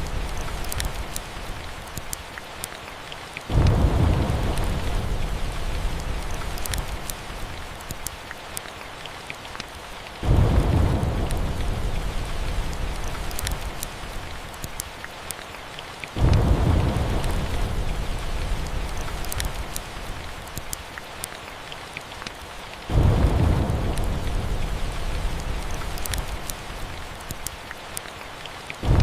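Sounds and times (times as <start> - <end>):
log fire crackles: 0.0 - 29.0
steady rain: 0.0 - 29.0
low thunder rumbles: 3.5 - 7.8, 10.2 - 14.4, 16.2 - 20.1, 22.9 - 27.2.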